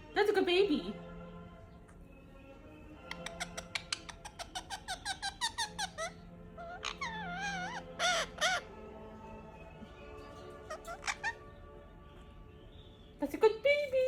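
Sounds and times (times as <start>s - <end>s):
parrot squeaky chirps: 3.0s - 8.8s, 10.1s - 11.7s
parrot squawks: 3.0s - 8.9s, 10.2s - 11.8s
parrot wavering whistle: 3.1s - 8.7s.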